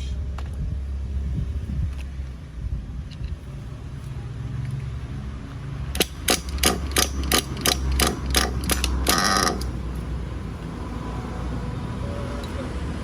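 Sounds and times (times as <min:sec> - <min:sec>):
model car engine humming: 0:05.8 - 0:13.0
sharp mechanical clicks: 0:05.9 - 0:10.2
short rapid rattle: 0:06.0 - 0:10.0.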